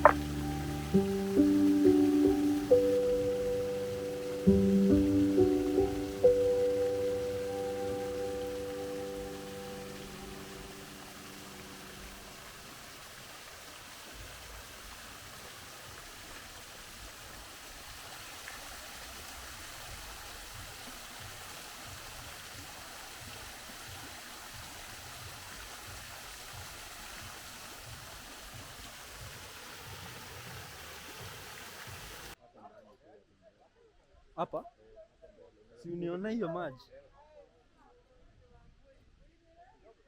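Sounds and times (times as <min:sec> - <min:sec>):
held musical tones: 0:00.0 - 0:12.7
waterfall rushing: 0:00.0 - 0:32.4.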